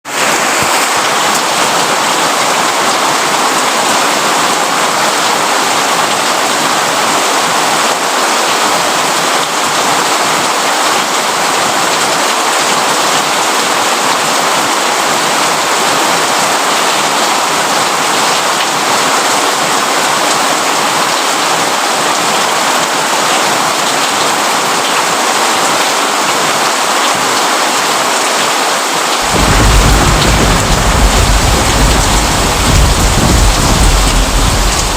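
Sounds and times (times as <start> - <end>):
steady rain falling: 0.1 - 34.9
deep low rumble: 29.3 - 34.9.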